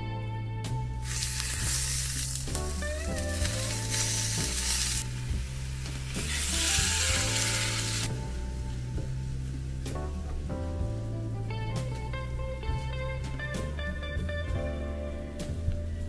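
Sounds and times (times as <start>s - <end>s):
background music with bass: 0.0s - 16.0s
fish sizzling on griddle: 1.0s - 8.2s.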